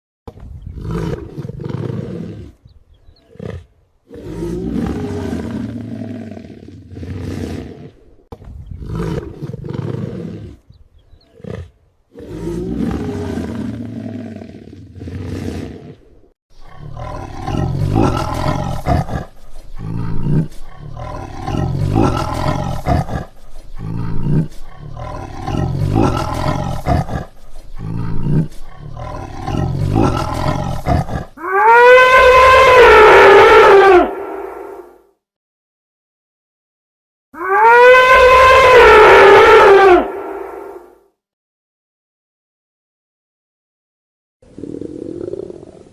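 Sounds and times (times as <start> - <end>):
animal cries: 29.0 - 34.9, 37.4 - 40.9.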